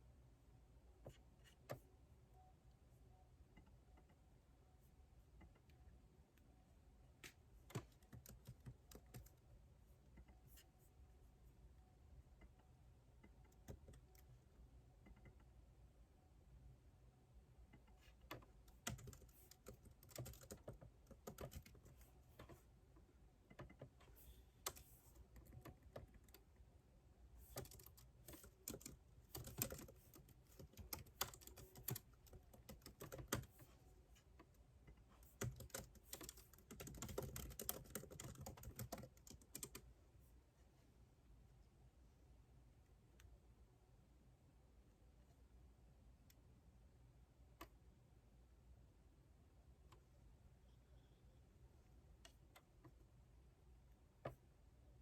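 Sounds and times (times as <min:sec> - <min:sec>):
keyboard typing: 0:07.2 - 0:09.5, 0:13.2 - 0:15.5, 0:17.7 - 0:22.6, 0:23.4 - 0:26.6, 0:27.4 - 0:33.7, 0:34.4 - 0:39.9.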